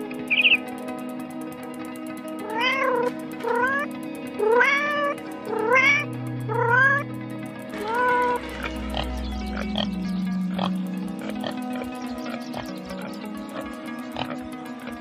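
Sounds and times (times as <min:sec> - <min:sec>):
background music: 0:00.0 - 0:15.0
cat meowing: 0:02.5 - 0:03.8, 0:04.4 - 0:07.0.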